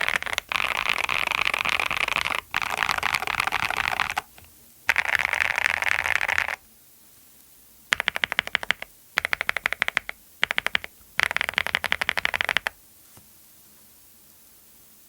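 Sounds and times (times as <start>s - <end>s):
mechanical keyboard typing: 0.0s - 6.6s, 7.9s - 12.8s.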